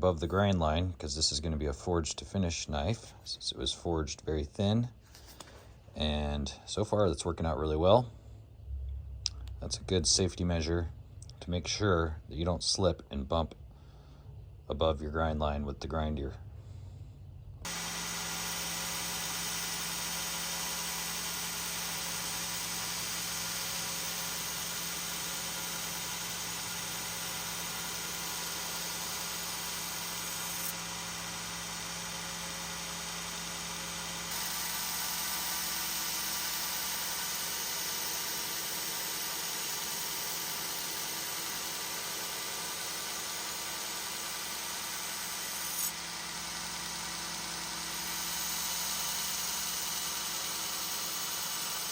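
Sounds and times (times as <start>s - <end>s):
belt grinder grinding steel blade: 17.7s - 51.9s.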